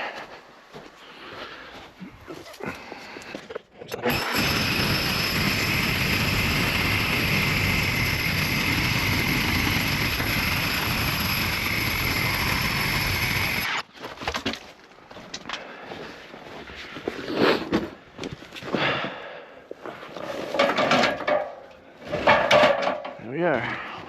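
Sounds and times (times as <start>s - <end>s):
power tool motor running: 4.0s - 13.8s.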